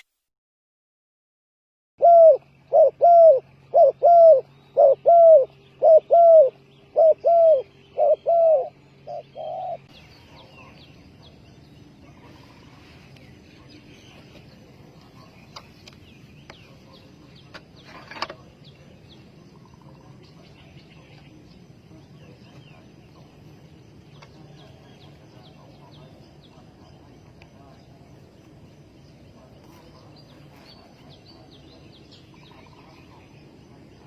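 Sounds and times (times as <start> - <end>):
dove cooing: 2.0 - 10.7
small birds chirping: 2.3 - 34.0.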